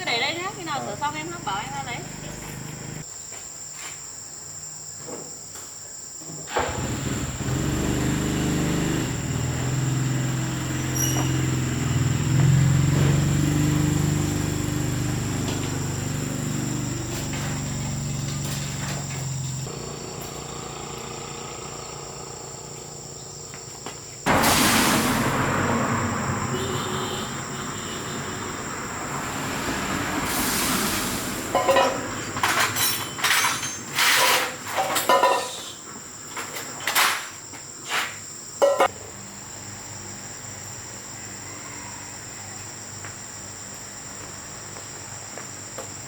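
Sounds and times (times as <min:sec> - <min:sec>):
engine running nearby: 0:00.0 - 0:03.0, 0:06.5 - 0:35.3
insects buzzing: 0:00.0 - 0:46.0
sudden loud noise: 0:24.3 - 0:32.3.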